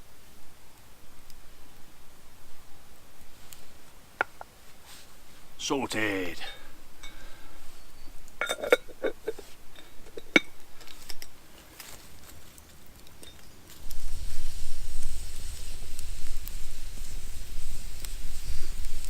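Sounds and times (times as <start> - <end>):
metal cookware clinking: 8.4 - 10.5.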